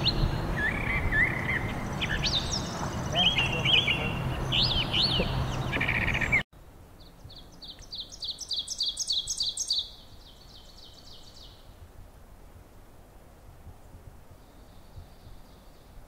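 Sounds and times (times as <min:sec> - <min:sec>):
bird singing varied phrases: 0:00.0 - 0:06.4, 0:07.0 - 0:11.6
bird song of two-note phrases: 0:00.0 - 0:06.4.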